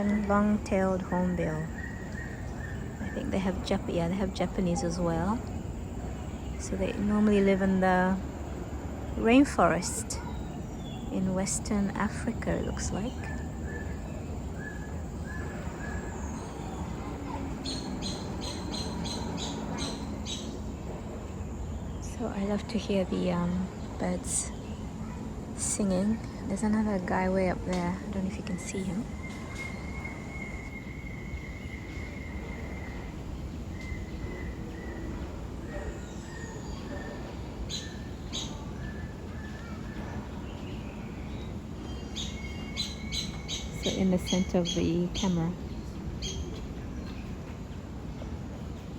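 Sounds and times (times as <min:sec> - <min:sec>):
low background hum: 0:00.0 - 0:48.9
birds whistling: 0:01.0 - 0:03.8, 0:12.4 - 0:20.6, 0:28.4 - 0:47.2.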